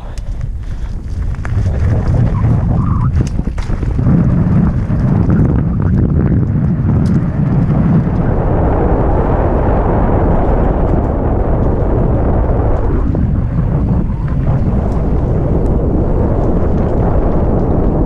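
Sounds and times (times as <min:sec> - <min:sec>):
wind rushing over microphone: 0:00.0 - 0:18.0
mountain bike rattling over rocks: 0:00.3 - 0:08.2.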